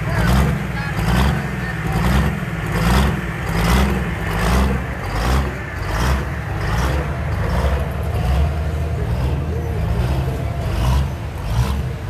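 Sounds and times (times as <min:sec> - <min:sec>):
diesel truck engine under load: 0:00.0 - 0:12.0.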